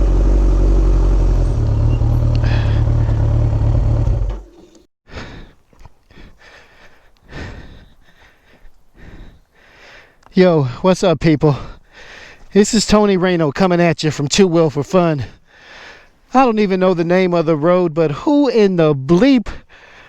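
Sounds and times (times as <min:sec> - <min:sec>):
motorcycle engine running: 0:00.0 - 0:04.9.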